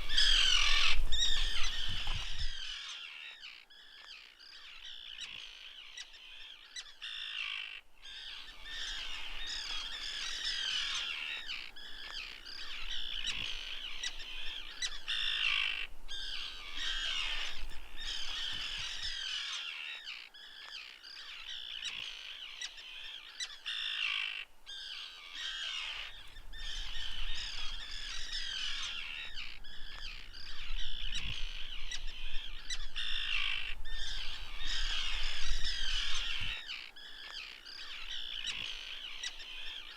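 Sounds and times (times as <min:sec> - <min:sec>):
seabirds squawking: 0:00.0 - 0:03.4.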